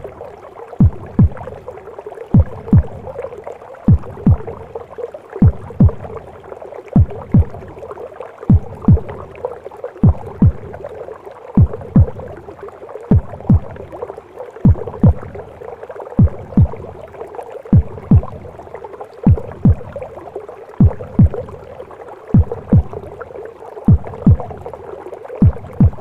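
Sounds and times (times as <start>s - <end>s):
heartbeat thumps: 0.8s - 1.7s, 2.3s - 3.3s, 3.9s - 4.8s, 5.4s - 6.3s, 7.0s - 7.8s, 8.4s - 9.4s, 10.0s - 10.9s, 11.6s - 12.4s, 13.1s - 14.0s, 14.6s - 15.6s, 16.2s - 17.1s, 17.7s - 18.6s, 19.2s - 20.1s, 20.8s - 21.7s, 22.3s - 23.2s, 23.9s - 24.8s, 25.4s - 26.0s.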